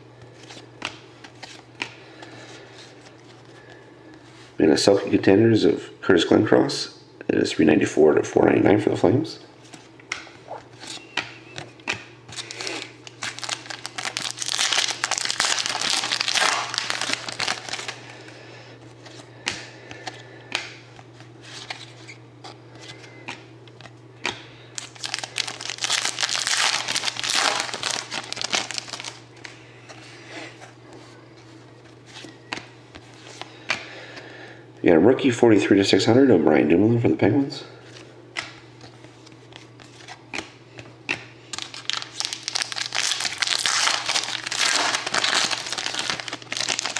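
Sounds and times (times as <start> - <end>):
low steady hum: 0.0 - 46.9
card pack wrappers crinkling and tearing: 10.5 - 18.1, 23.3 - 29.6, 41.5 - 46.9.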